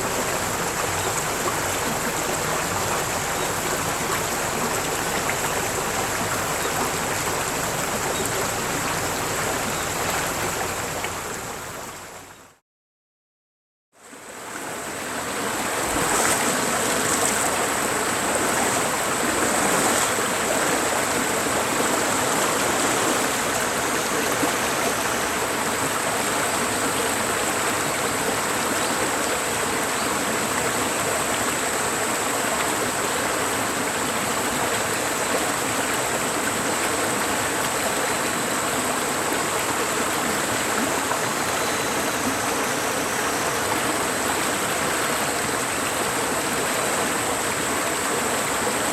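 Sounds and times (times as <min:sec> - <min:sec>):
stream rushing: 0:00.0 - 0:12.4, 0:14.0 - 0:48.9.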